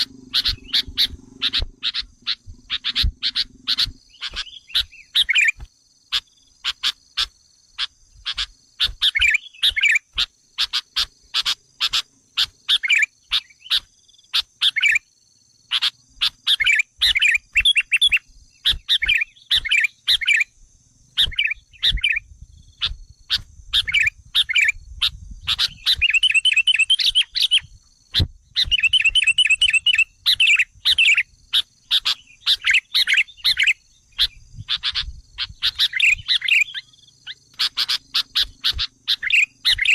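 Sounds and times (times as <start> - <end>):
faint high whine: 0.0 - 5.7
bulbuls chirping and trilling: 0.0 - 15.0, 15.7 - 20.5, 21.2 - 39.9.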